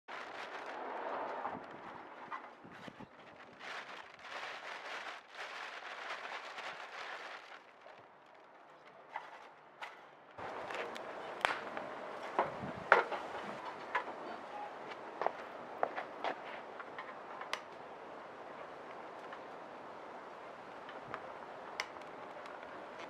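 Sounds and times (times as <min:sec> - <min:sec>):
wood fire crackling: 0:10.3 - 0:23.0.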